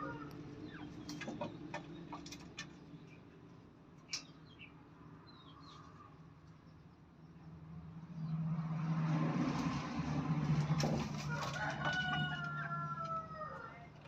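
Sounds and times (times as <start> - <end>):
rooster crowing: 11.2 - 13.9.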